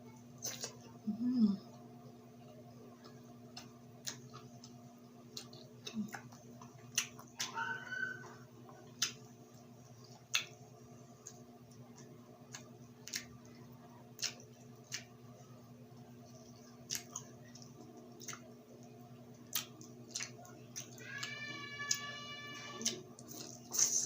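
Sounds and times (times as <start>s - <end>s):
steady low hum: 0.0s - 24.0s
wet chewing mouth clicks: 3.0s - 7.6s, 8.8s - 10.6s, 11.2s - 15.2s, 16.3s - 22.0s.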